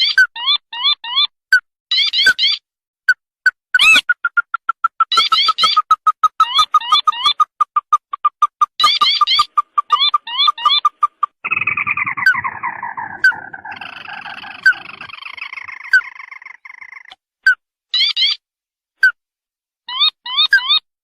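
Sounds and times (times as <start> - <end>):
crake calling in trills: 3.8 - 17.2.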